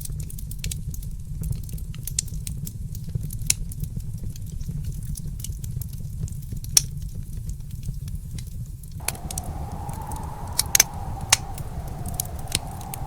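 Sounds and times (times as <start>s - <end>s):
fireplace fire crackling: 9.0s - 13.0s.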